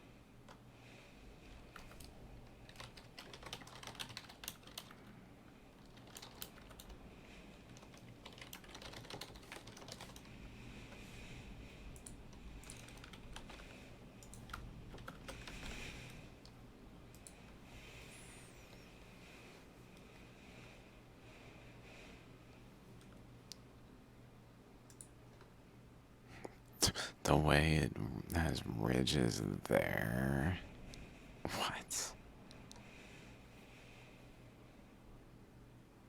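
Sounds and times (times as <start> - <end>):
low steady hum: 0.0 - 36.0
keyboard typing clicks: 2.7 - 4.9, 7.7 - 10.3.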